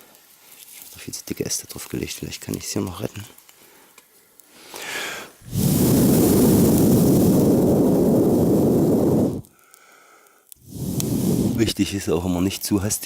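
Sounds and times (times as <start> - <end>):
breath blown on microphone: 4.8 - 9.5, 10.6 - 11.8.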